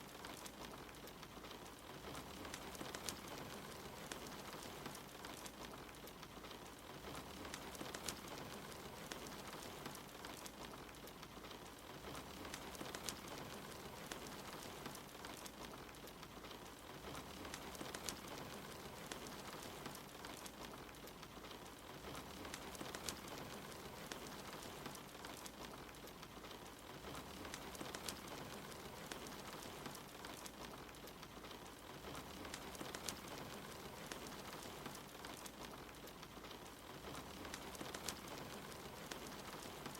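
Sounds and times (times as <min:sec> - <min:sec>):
rain hiss: 0:00.0 - 0:39.9
wood fire crackling: 0:00.0 - 0:39.9.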